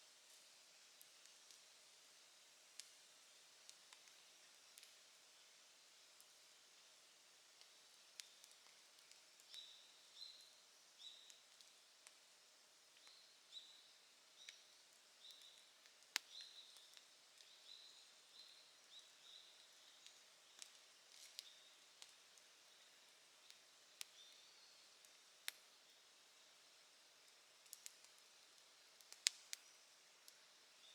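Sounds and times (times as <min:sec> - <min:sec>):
campfire crackling: 0:02.4 - 0:10.2, 0:14.0 - 0:30.8.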